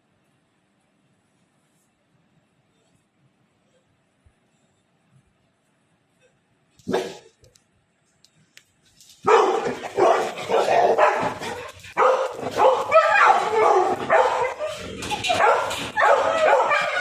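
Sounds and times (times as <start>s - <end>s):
dog whining yelping and barking: 9.3s - 17.0s.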